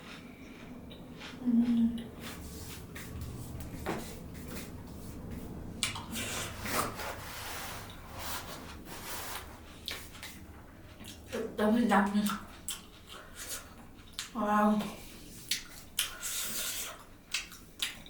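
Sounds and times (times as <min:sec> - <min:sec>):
person chewing food: 0:00.0 - 0:03.5, 0:12.2 - 0:14.4, 0:15.0 - 0:18.0
person humming: 0:01.4 - 0:02.2.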